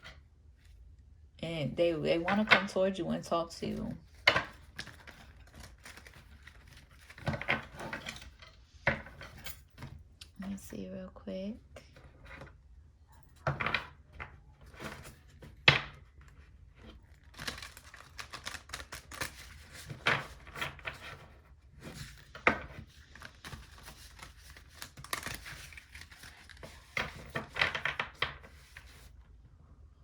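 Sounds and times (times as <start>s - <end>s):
cards rustling and riffling: 3.6s - 9.4s, 14.6s - 29.2s
cards snapping: 17.3s - 20.0s.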